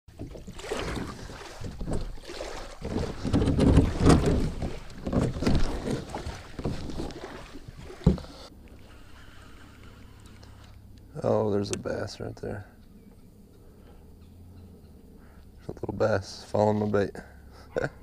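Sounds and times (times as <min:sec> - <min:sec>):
wind buffeting microphone: 0:00.4 - 0:08.3.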